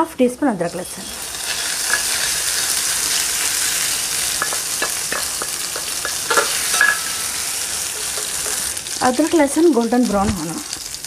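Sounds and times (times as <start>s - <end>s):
food sizzling in hot oil: 0.5s - 11.0s
wooden spatula scraping pan: 1.5s - 8.9s.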